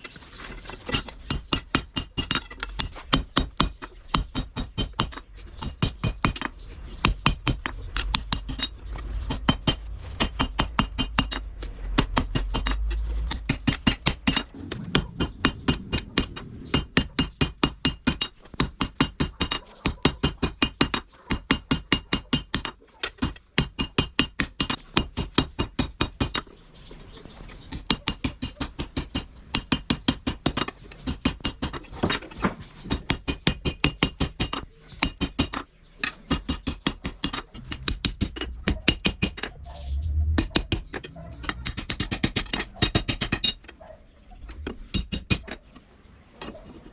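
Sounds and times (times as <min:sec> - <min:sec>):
low rumble: 0:06.6 - 0:18.5, 0:37.5 - 0:45.4.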